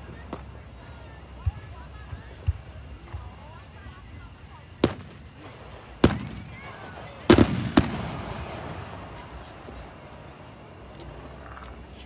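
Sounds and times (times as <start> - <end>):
fireworks bursting with bangs: 4.8 - 10.3.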